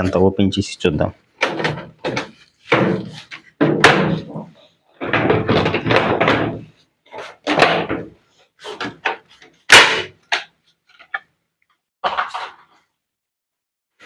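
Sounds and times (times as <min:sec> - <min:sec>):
washing machine panels knocking: 0:01.4 - 0:06.8.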